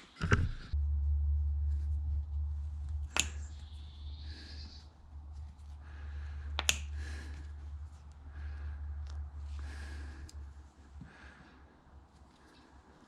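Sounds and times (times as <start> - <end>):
steady low hum: 0.0 - 13.0
sharp click: 3.1 - 3.6, 6.6 - 7.0
rustling handling noises: 4.8 - 6.1.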